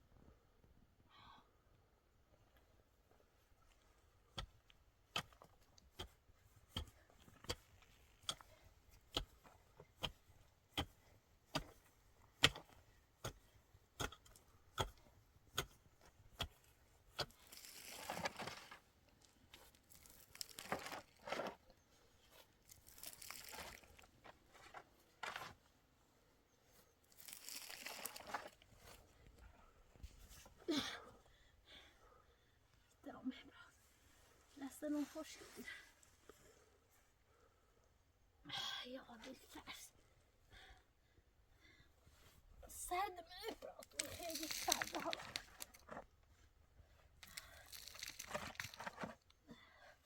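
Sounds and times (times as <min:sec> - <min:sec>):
scraping and rustling: 0:43.9 - 0:46.0, 0:47.6 - 0:49.2.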